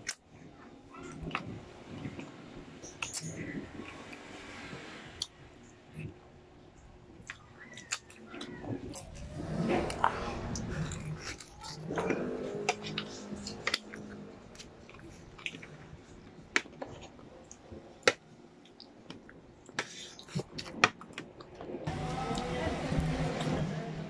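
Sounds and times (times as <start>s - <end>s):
wet chewing and lip smacking: 7.2s - 21.6s.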